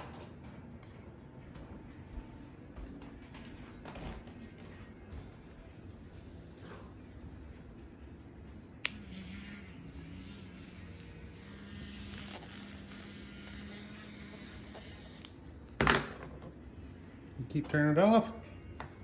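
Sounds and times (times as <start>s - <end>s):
electric toothbrush buzzing: 8.8s - 15.6s.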